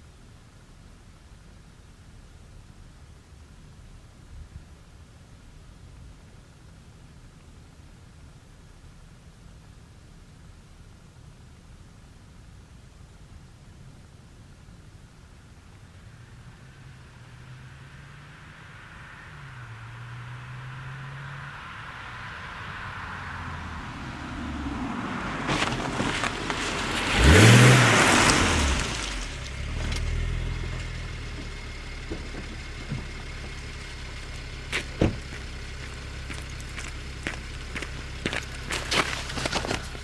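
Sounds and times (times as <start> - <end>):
car exhaust revving: 16.8 - 40.0.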